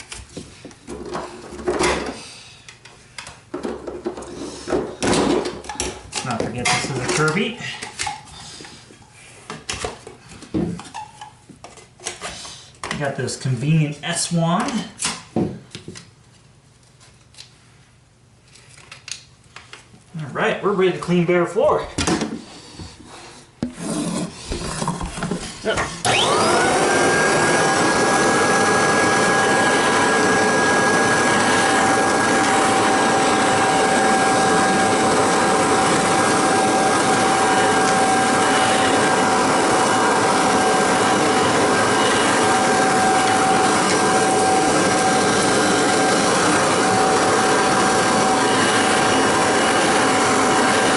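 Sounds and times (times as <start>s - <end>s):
vacuum motor whine: 25.8s - 50.9s.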